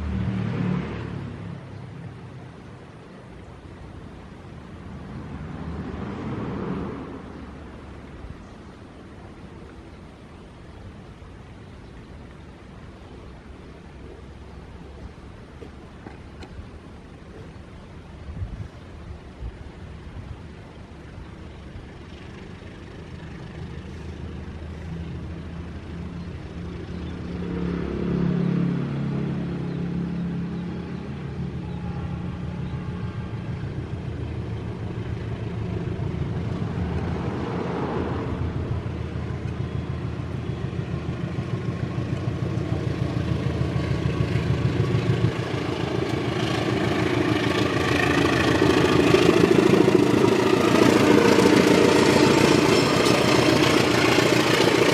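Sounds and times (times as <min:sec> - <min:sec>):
diesel locomotive engine drone: 0:00.0 - 0:54.9
train wheel clatter: 0:39.1 - 0:54.9.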